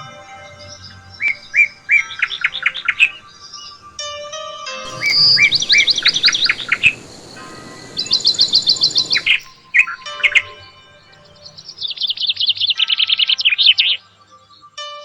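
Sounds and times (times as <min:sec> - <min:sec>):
hissy background noise: 0:00.0 - 0:14.6
faint background music: 0:00.0 - 0:15.0
small bird chirping: 0:04.9 - 0:14.0.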